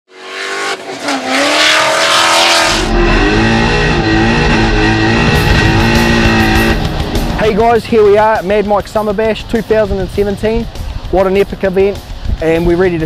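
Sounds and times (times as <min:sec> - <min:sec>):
car engine revving hard: 0:00.1 - 0:07.5.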